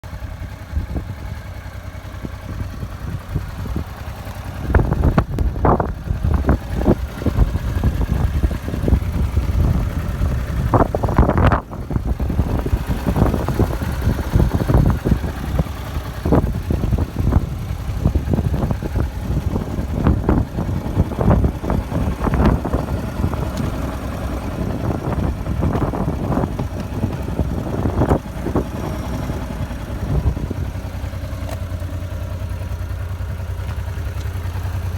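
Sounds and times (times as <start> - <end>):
motorcycle engine idling: 0.0 - 34.9
irregular thumps: 22.3 - 28.8.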